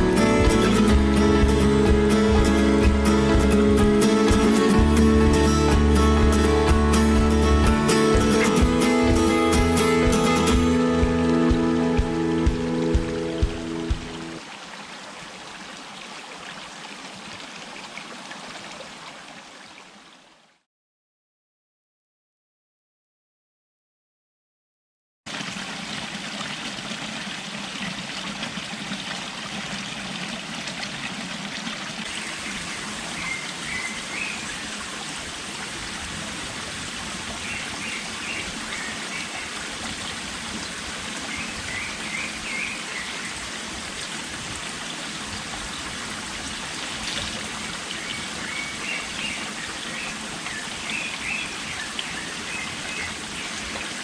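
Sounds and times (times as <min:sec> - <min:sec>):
running water: 0:00.0 - 0:20.6, 0:25.3 - 0:54.0.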